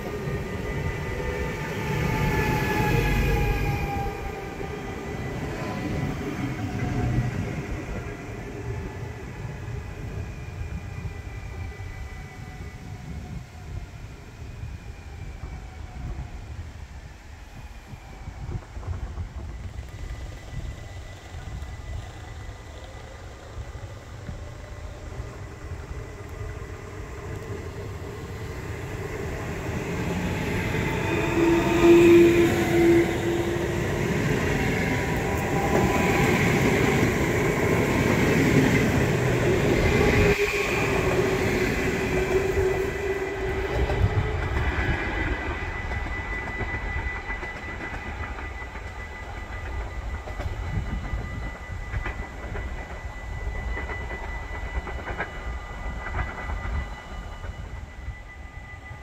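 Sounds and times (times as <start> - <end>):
train rolling slowly: 0.0 - 59.0
high squealing wheels: 17.6 - 59.0.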